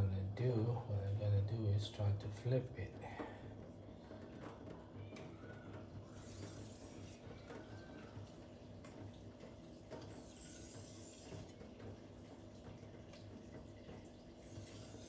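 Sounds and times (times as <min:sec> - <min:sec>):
blade rasping on whetstone: 0:10.2 - 0:11.5, 0:14.5 - 0:15.0.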